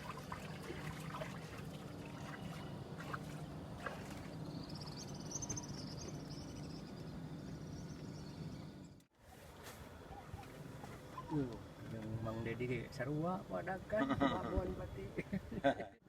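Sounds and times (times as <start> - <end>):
low steady rumble: 0.0 - 9.1.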